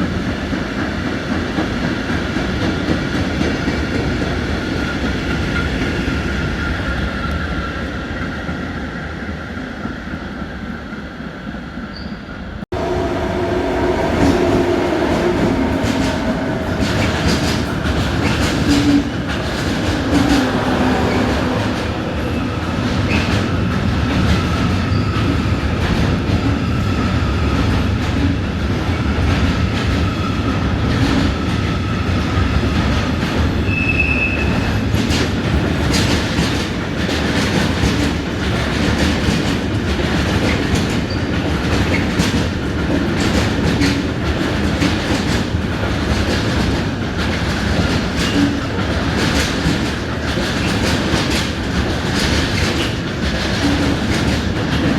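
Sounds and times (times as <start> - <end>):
train rumbling on track: 0.0 - 54.9
train wheel squeal: 11.8 - 23.6, 24.3 - 25.6, 33.5 - 34.9, 40.5 - 42.1.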